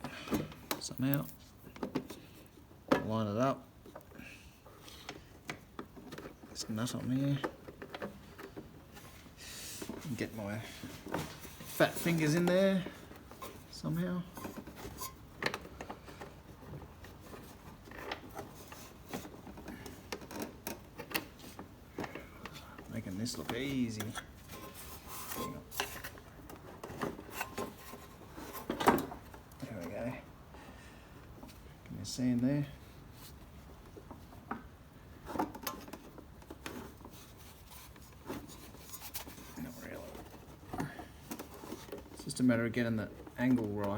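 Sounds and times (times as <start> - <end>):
fingers fumbling with plastic nut: 14.4 - 30.0.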